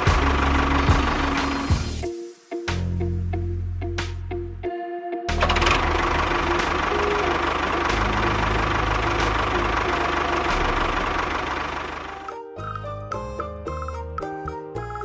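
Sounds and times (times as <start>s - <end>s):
motor pulsing rumble: 5.4s - 12.2s.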